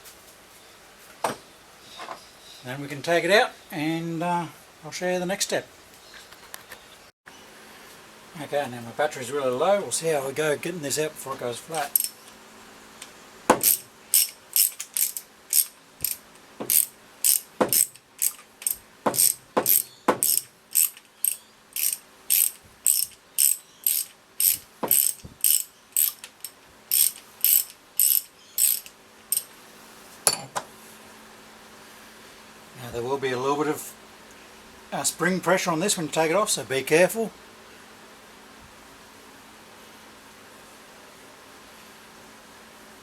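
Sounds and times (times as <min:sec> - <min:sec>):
socket ratchet clicking: 0:11.8 - 0:12.2, 0:13.5 - 0:29.5.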